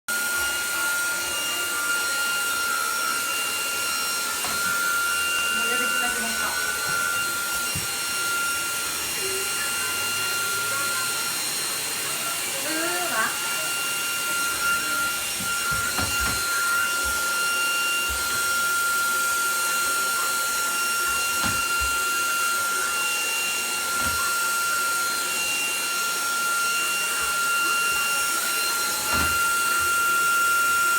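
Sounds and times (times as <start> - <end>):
vacuum cleaner running: 0.1 - 30.9.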